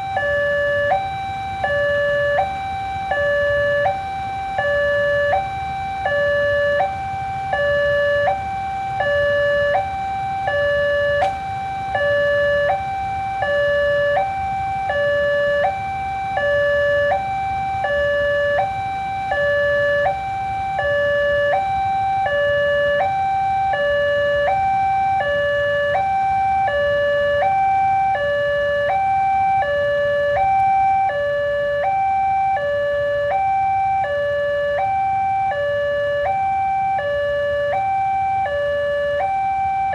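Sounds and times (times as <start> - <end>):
level crossing two-tone alarm: 0.0 - 39.9.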